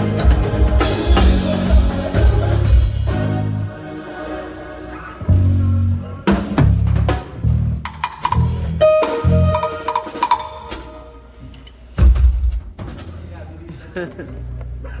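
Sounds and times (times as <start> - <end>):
drum kit hits and fills: 0.0 - 3.6, 5.3 - 13.3
held bass notes: 0.0 - 12.1.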